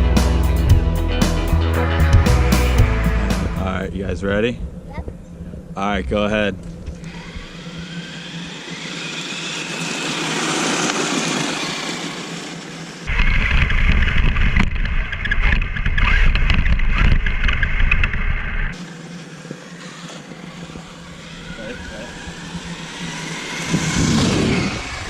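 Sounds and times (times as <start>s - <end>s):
rc truck electric motor whine: 6.8s - 25.0s.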